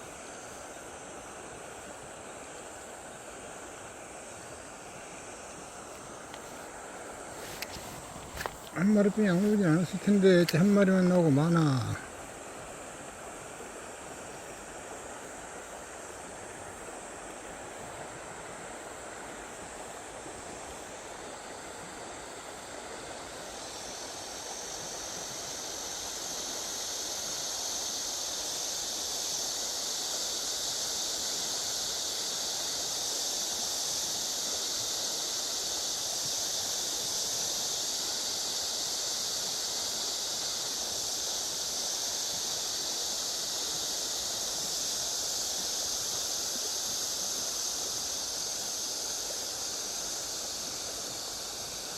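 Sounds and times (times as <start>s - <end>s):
high steady hiss: 0.0s - 51.9s
river water rushing: 0.1s - 28.4s.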